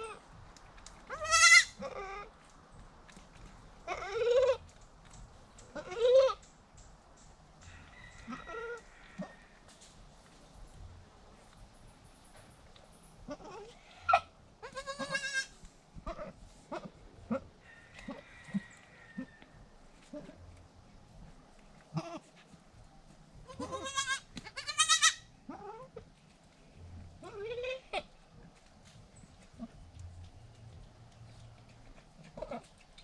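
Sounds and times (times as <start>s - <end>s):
soft clicks and rustles: 0.1s - 1.2s, 2.3s - 13.8s, 28.0s - 33.0s
goat bleating: 1.1s - 2.4s, 3.8s - 4.7s, 5.7s - 6.4s, 13.2s - 17.5s, 21.9s - 22.3s, 23.4s - 26.0s, 27.2s - 28.2s, 32.2s - 32.8s.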